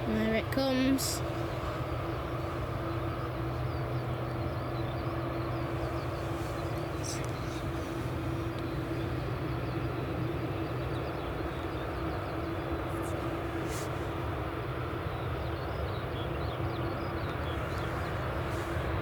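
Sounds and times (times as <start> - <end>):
jet engines droning: 0.0 - 19.0.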